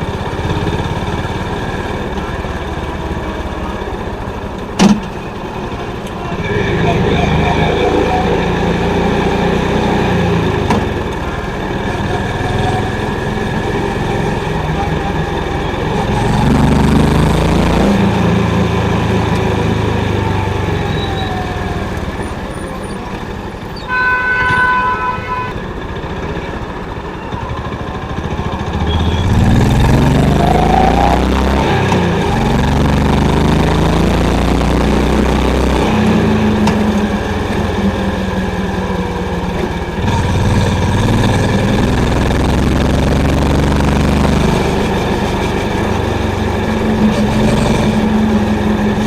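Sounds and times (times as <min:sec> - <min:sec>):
motorcycle engine running: 0:00.0 - 0:49.0
vehicle horn: 0:23.8 - 0:25.8, 0:28.7 - 0:29.5.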